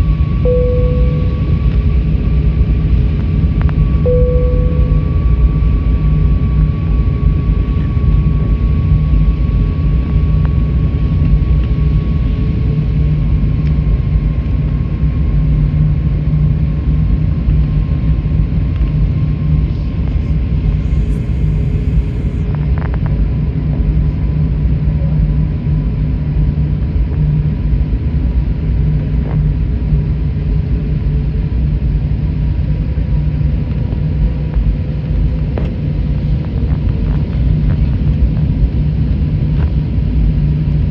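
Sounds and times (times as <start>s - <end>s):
aircraft cabin rumble: 0.5s - 2.0s, 4.1s - 5.8s
faint engine tones: 0.5s - 2.0s, 4.0s - 5.8s.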